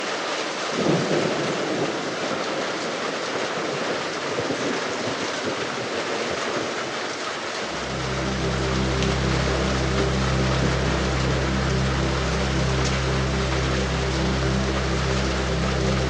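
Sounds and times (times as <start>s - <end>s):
soft rain hissing: 0.0s - 16.0s
low rumble: 7.6s - 16.0s
low steady drone: 7.6s - 16.0s.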